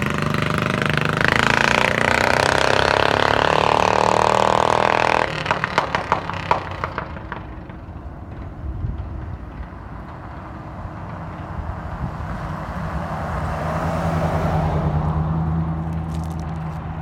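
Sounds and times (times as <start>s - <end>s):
mini bike engine running: 0.0s - 8.0s.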